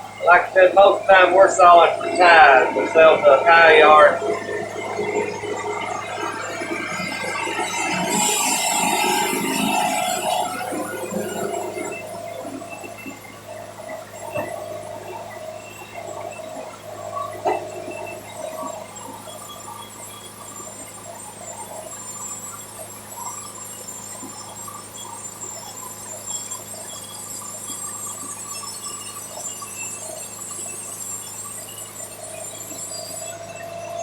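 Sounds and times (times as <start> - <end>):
band sawmill diesel engine humming: 0.0 - 6.0.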